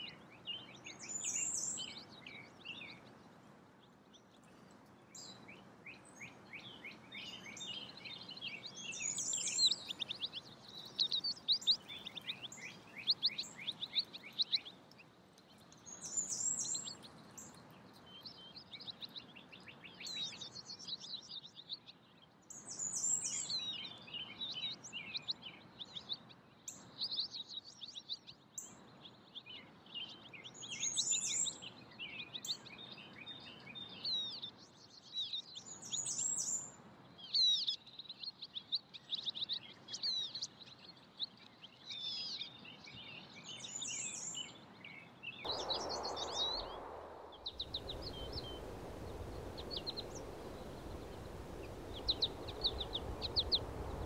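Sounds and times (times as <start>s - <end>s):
faint background hiss: 0.0s - 54.0s
songbirds chirping and trilling: 0.0s - 54.0s.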